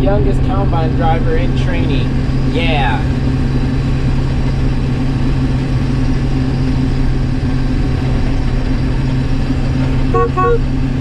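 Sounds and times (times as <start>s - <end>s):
combine harvester engine droning: 0.0s - 11.0s.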